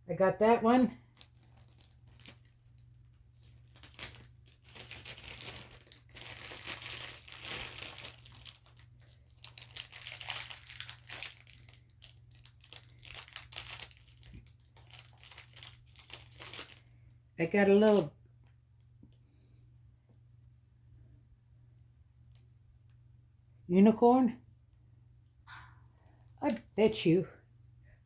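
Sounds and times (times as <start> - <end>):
packaging crinkling and tearing: 1.0 - 17.0, 17.8 - 18.1.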